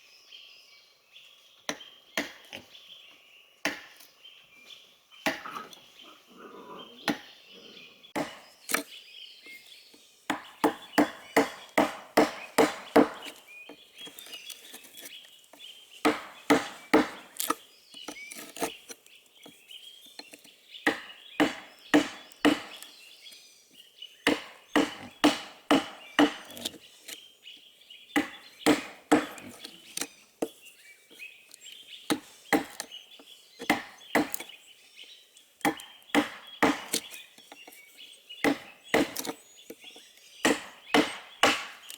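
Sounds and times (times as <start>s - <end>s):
wood being chopped: 1.7s - 2.7s, 3.6s - 4.1s, 5.2s - 5.6s, 7.1s - 7.3s, 8.2s - 8.9s, 10.3s - 15.1s, 16.0s - 18.8s, 20.2s - 23.0s, 24.2s - 26.8s, 28.1s - 30.6s, 32.1s - 32.9s, 33.6s - 34.5s, 35.6s - 37.5s, 38.4s - 39.4s, 40.4s - 41.9s.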